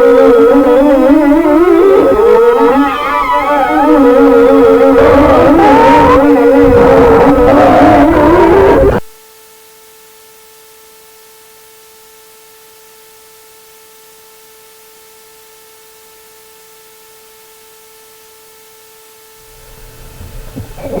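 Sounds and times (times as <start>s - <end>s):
steady electronic hum: 0.0s - 21.0s
faint static hiss: 6.0s - 21.0s.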